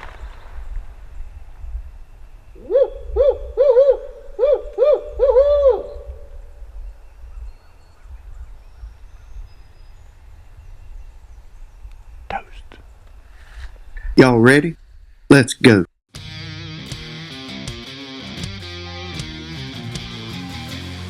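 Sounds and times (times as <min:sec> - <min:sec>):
owl hooting: 0:02.6 - 0:06.3.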